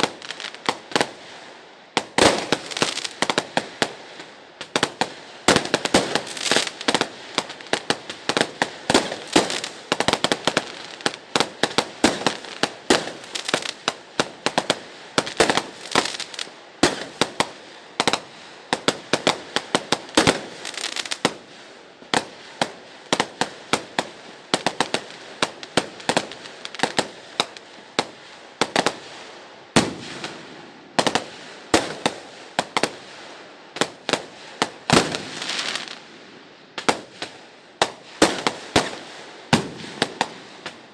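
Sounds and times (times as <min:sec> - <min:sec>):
distant fireworks crackling: 0:00.0 - 0:40.9
fireworks banging: 0:33.8 - 0:36.1.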